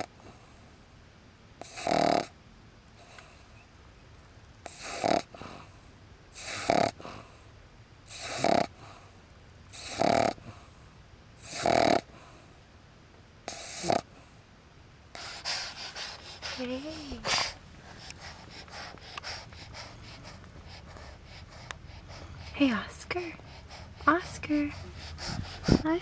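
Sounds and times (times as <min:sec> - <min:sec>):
puppy snoring: 0:00.0 - 0:00.2, 0:01.6 - 0:02.4, 0:04.6 - 0:05.7, 0:06.3 - 0:07.4, 0:08.1 - 0:09.0, 0:09.7 - 0:10.7, 0:11.4 - 0:12.4, 0:13.4 - 0:14.3, 0:15.1 - 0:26.0.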